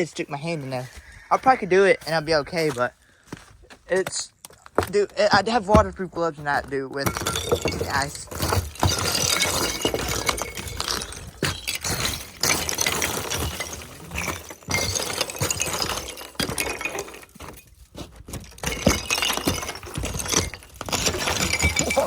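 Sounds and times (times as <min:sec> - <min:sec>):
ice pieces clinking: 0:07.0 - 0:22.0.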